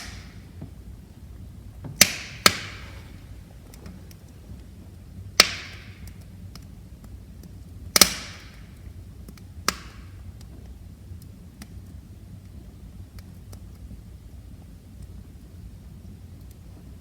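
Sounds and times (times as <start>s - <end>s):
faint fire ticks: 0.0s - 17.0s
fire popping: 0.0s - 17.0s
fire burning rush: 0.7s - 7.6s.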